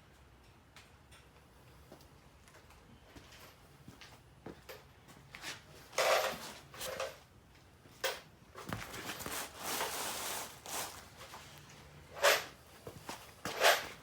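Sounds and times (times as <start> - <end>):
tools scraping and knocking: 5.4 - 7.2, 12.1 - 14.0
rustling: 8.6 - 14.0.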